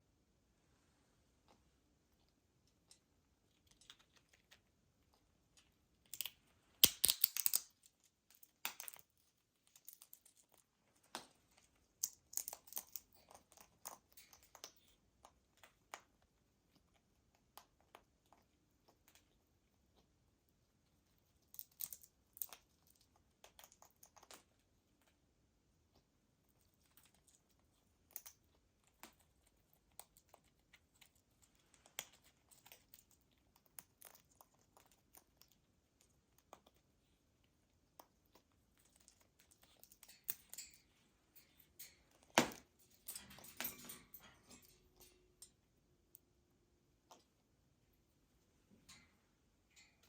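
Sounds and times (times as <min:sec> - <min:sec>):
parrot cracking nut with beak: 0:06.0 - 0:10.5, 0:12.0 - 0:14.8, 0:21.5 - 0:22.6.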